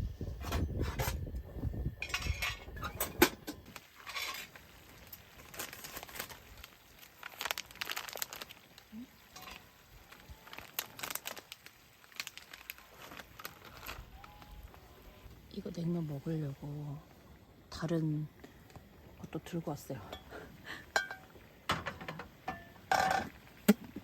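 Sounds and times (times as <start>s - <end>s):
items being set down: 2.0s - 4.5s, 21.0s - 24.0s
plastic packaging crinkling: 3.7s - 15.3s.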